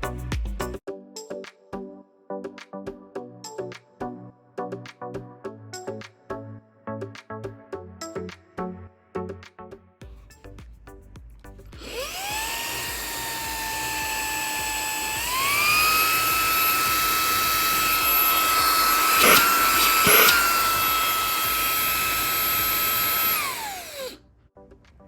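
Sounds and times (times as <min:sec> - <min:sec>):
handheld vacuum whining: 0:11.8 - 0:24.2.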